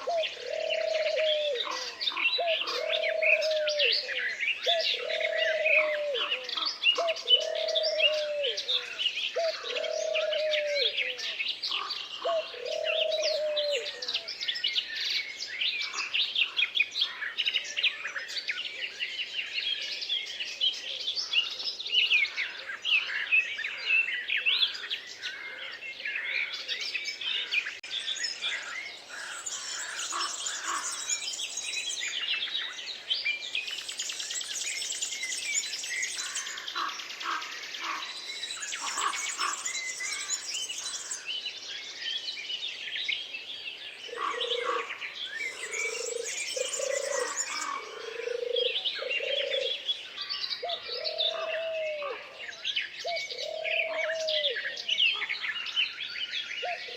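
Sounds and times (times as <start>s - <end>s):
dove cooing: 0.0s - 11.3s, 12.2s - 14.3s, 44.1s - 49.9s, 50.6s - 52.4s, 53.0s - 54.8s
songbirds chirping and trilling: 0.0s - 56.9s.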